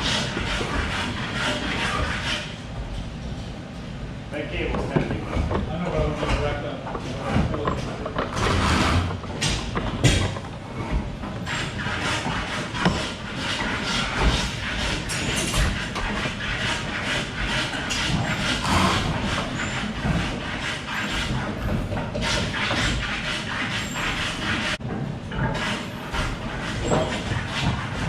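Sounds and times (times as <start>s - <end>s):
scraping and cutting wood: 0.0s - 2.6s, 5.0s - 24.8s, 25.5s - 28.0s.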